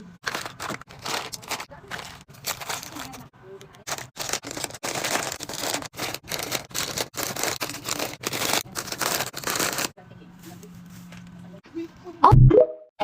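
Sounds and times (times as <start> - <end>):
packaged snacks and drinks handled: 0.0 - 10.0.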